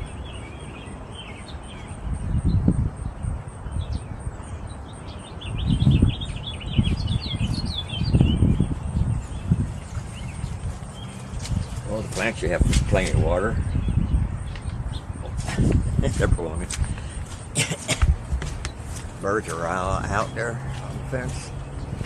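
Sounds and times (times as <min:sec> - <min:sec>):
small songbirds chirping: 0:00.0 - 0:22.0.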